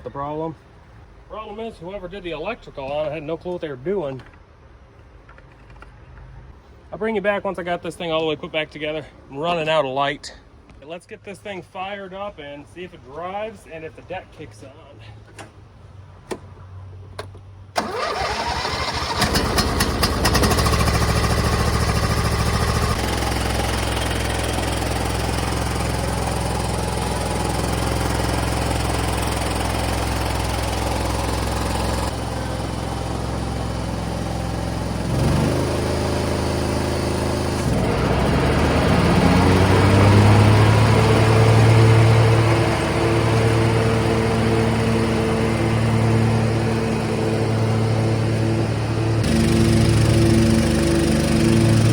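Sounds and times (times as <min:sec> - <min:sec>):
electric starter cranking: 0:17.8 - 0:51.9
mower engine running: 0:17.8 - 0:51.9.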